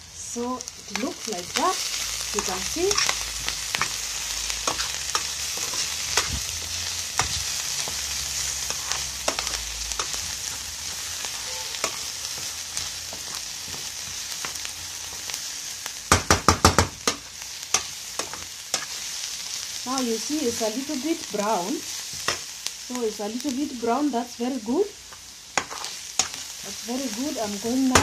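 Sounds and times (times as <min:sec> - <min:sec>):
onions sizzling in a frying pan: 0:00.0 - 0:28.0
utensil scraping the pan: 0:04.6 - 0:06.4, 0:11.2 - 0:14.6, 0:25.6 - 0:26.4.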